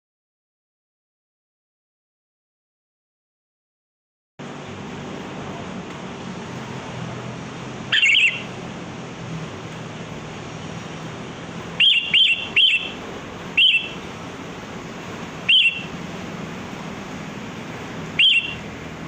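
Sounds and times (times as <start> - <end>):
steady low hum: 4.4 - 19.0
bird chirping: 7.9 - 8.6, 11.7 - 14.2, 15.4 - 16.0, 18.1 - 18.8.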